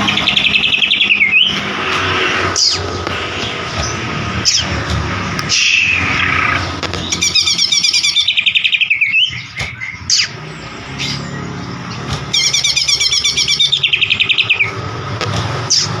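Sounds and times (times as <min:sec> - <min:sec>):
bird sweeping whistles: 0:00.0 - 0:01.6, 0:05.5 - 0:11.2, 0:12.3 - 0:14.8
bird singing rapid repeated notes: 0:00.0 - 0:16.0
steady low hum: 0:00.0 - 0:16.0.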